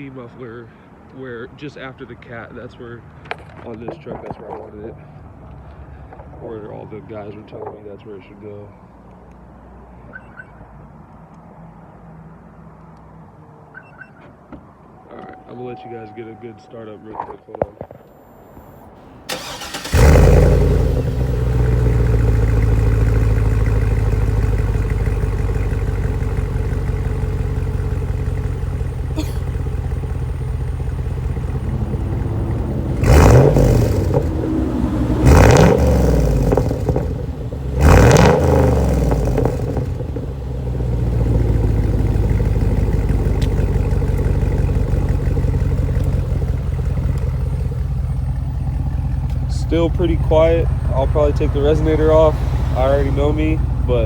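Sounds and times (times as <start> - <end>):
car engine starting and idling: 18.1 - 54.0
engine revving: 19.1 - 54.0.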